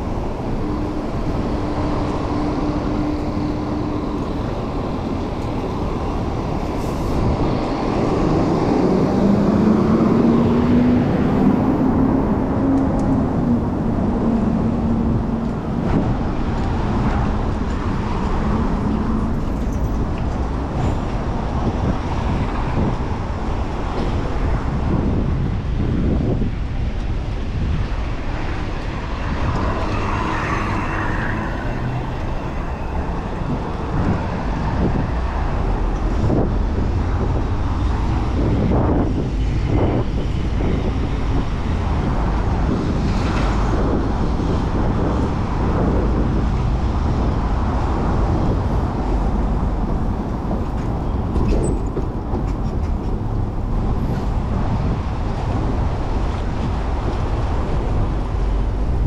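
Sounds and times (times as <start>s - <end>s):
road traffic: 0.0s - 59.0s
wind rumble on microphone: 0.0s - 59.0s.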